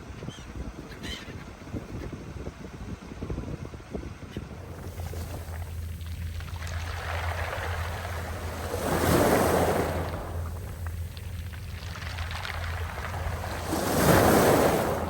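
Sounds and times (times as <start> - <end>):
steady low rumble: 0.0 - 15.0
sea wave breaking: 4.6 - 15.0.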